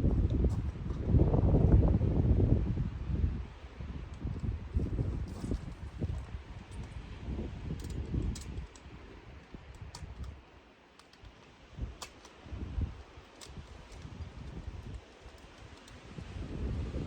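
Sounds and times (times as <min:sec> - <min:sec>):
wind buffeting microphone: 0:00.0 - 0:10.5, 0:11.2 - 0:17.0
sharp clicks: 0:07.8 - 0:12.4, 0:13.0 - 0:16.3.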